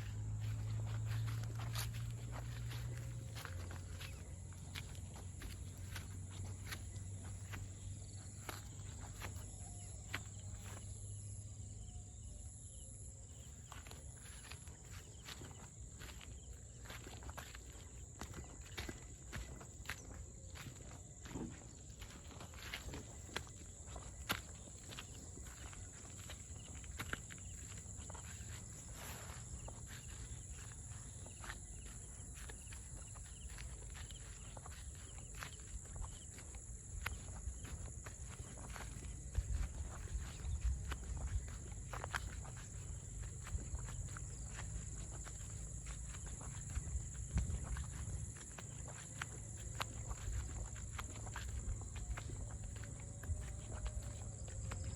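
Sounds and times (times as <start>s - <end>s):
footsteps on a path: 0.0s - 54.9s
insect drone: 0.0s - 54.9s.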